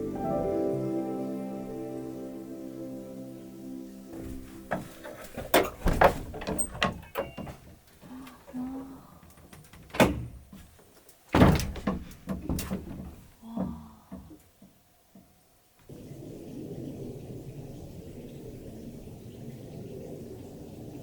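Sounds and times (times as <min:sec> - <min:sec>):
knocks and thuds: 0:04.2 - 0:07.9, 0:09.7 - 0:15.3.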